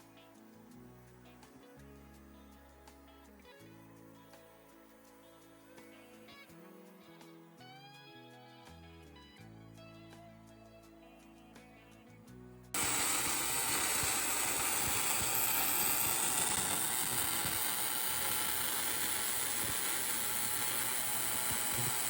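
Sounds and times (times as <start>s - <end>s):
quiet guitar music: 0.0s - 12.8s
welding arc: 12.8s - 22.0s.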